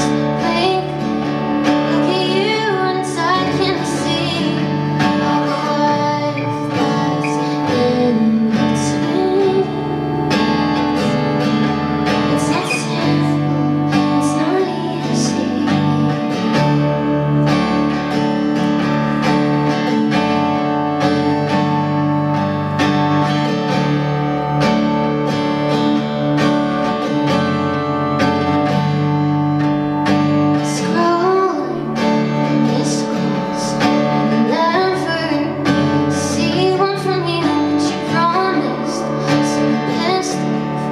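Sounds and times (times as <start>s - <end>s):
woman singing: 0.0s - 18.0s, 29.6s - 40.9s
strummed acoustic guitar: 0.0s - 40.9s.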